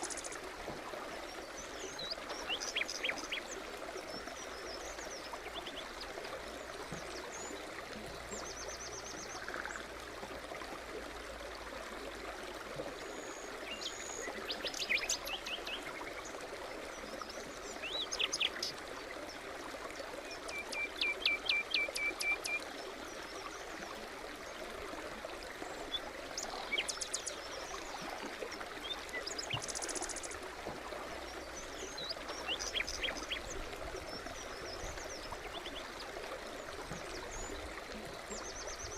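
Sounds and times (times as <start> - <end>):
stream babbling: 0.0 - 38.9
songbirds chirping and trilling: 31.3 - 36.1.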